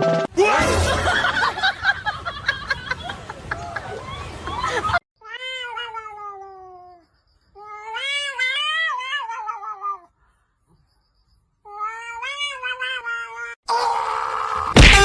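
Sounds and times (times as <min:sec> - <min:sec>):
cat yowling: 0:05.2 - 0:07.0, 0:07.6 - 0:10.1, 0:11.7 - 0:15.0.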